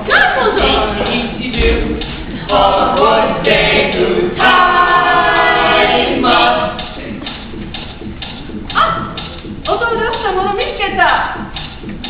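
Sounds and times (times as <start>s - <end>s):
group singing a cappella: 0.0s - 7.4s.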